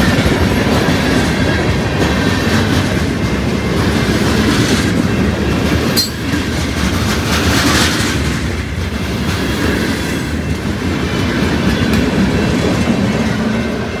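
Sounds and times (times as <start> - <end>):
steel wheels rumbling on rail: 0.0 - 14.0.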